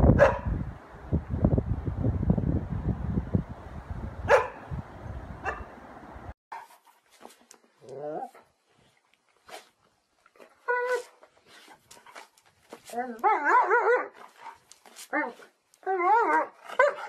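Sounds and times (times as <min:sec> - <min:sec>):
dog barking: 0:00.2 - 0:00.5, 0:04.3 - 0:04.6, 0:05.4 - 0:05.7, 0:16.8 - 0:17.0.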